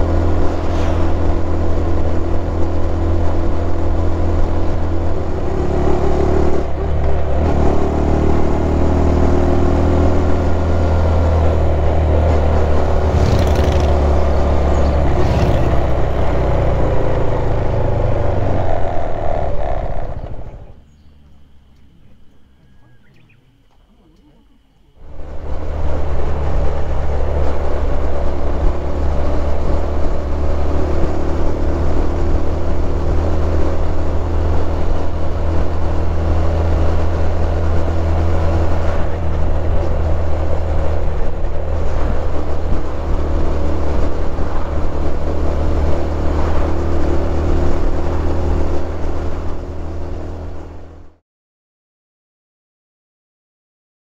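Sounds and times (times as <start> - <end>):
wind noise: 0.0 - 7.7
motorcycle engine cruising: 0.0 - 24.4, 25.0 - 51.2
road rumble: 0.0 - 51.2.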